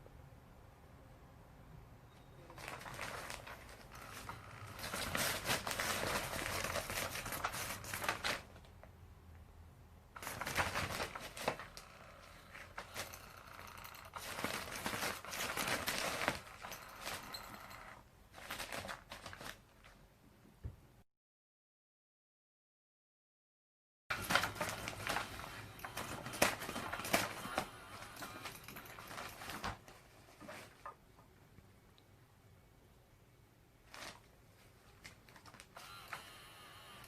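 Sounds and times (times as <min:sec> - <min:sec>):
crinkling and rustling: 0:02.4 - 0:09.0, 0:10.2 - 0:20.1, 0:24.1 - 0:31.4, 0:33.8 - 0:36.3.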